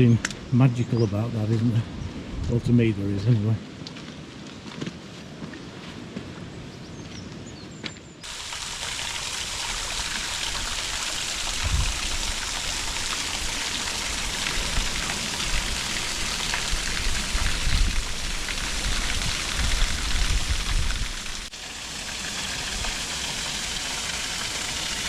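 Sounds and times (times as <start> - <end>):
waterfall rushing and splashing: 8.2 - 25.0.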